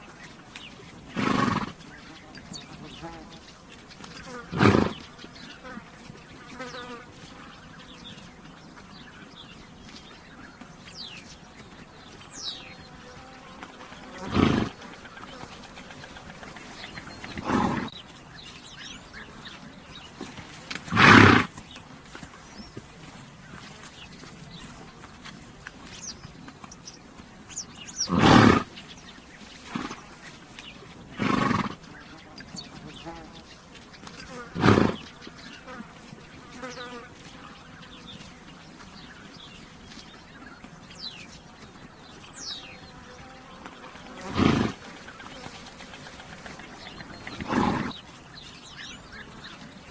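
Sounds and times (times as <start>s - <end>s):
bird chirping: 0.0s - 49.9s
flies buzzing: 0.1s - 8.4s, 10.6s - 27.0s, 29.5s - 39.5s, 41.0s - 49.9s
horse blowing air: 1.0s - 1.8s, 4.5s - 5.0s, 14.2s - 14.9s, 16.4s - 18.0s, 20.2s - 21.6s, 28.0s - 28.8s, 31.2s - 31.8s, 34.5s - 35.0s, 44.2s - 45.0s, 45.8s - 48.1s.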